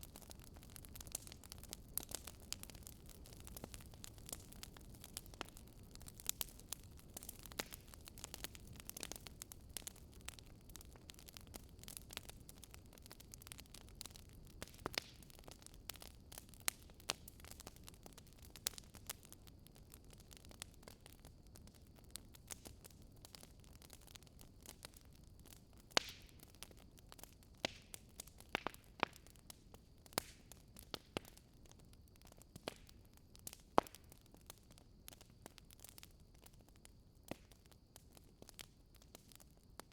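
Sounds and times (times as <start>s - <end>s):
fire low rumble: 0.0s - 39.9s
wood fire crackling: 0.0s - 39.9s
sharp pops and snaps: 27.6s - 29.2s.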